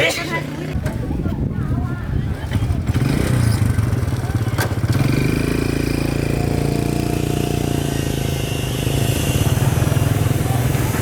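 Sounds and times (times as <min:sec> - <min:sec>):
small motorcycle engine running: 0:02.6 - 0:11.0.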